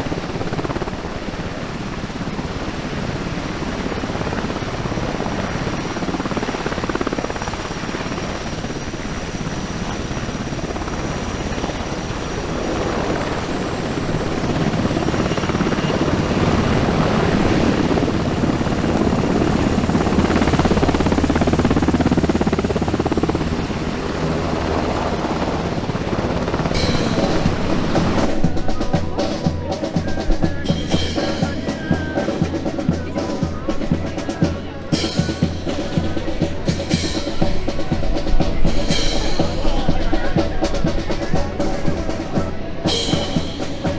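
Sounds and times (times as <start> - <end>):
helicopter flying over: 0.0 - 43.9
drum-led music: 13.1 - 43.9.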